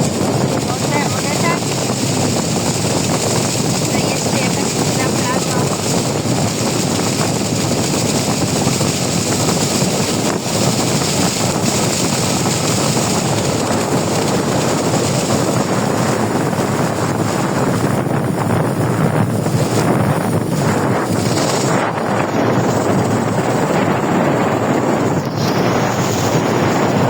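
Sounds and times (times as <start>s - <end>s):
boat running noise: 0.0s - 27.0s
water rushing: 0.0s - 27.0s
wind on microphone: 0.0s - 27.0s.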